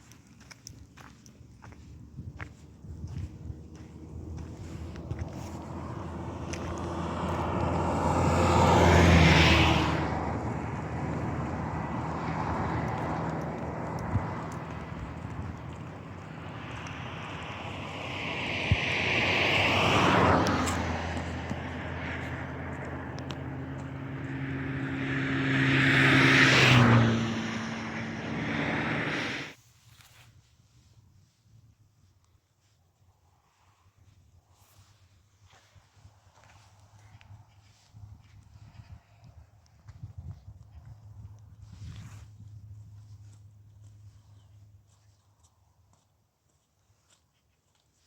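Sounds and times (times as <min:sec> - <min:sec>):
vehicle engine passing by: 0:01.9 - 0:29.6.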